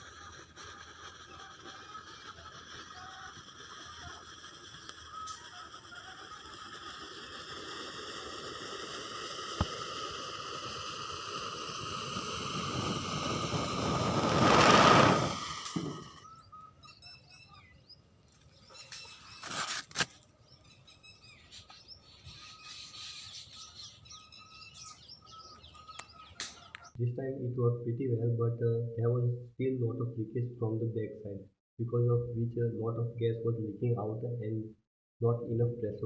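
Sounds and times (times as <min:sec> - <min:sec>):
rocket motor rushing hiss: 0:00.0 - 0:16.3
birds chirping faintly: 0:16.0 - 0:19.6, 0:20.2 - 0:27.0
sharp clicks: 0:25.9 - 0:26.9.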